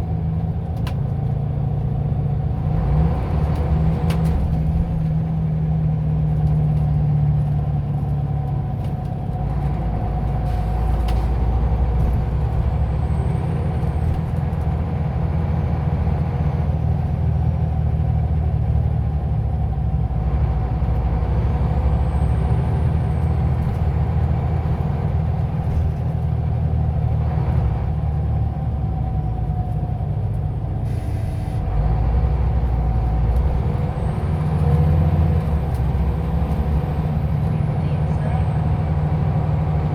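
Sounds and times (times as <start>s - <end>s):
bus engine rumble and whine: 0.0s - 39.9s
air brake hisses: 30.8s - 31.6s.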